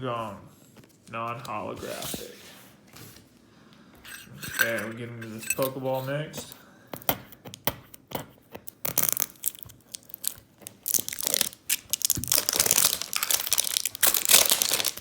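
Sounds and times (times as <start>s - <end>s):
plastic wrapping crinkling and tearing: 8.7s - 15.0s.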